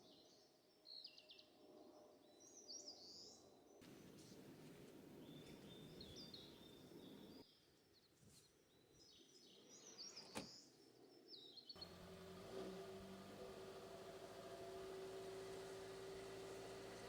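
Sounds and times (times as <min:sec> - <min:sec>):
small birds chirping: 0:05.2 - 0:07.6, 0:08.7 - 0:17.0.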